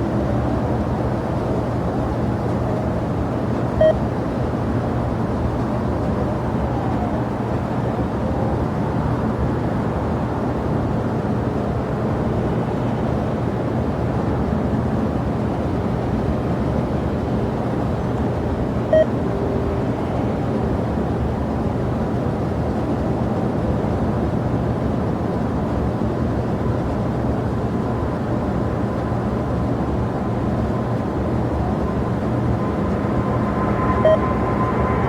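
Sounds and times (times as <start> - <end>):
brief beep: 3.8 - 4.0, 18.9 - 19.2, 32.6 - 35.0
jet engines rumbling: 27.0 - 35.0.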